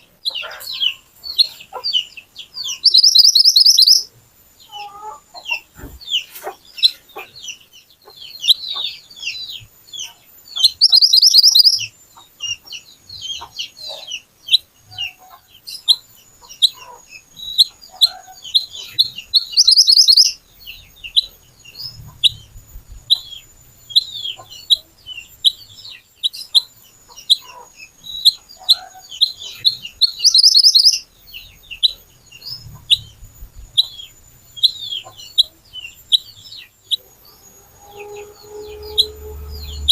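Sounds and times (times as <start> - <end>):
bird chirping: 0.0 - 39.9
harsh trilled bird bursts: 2.8 - 4.1.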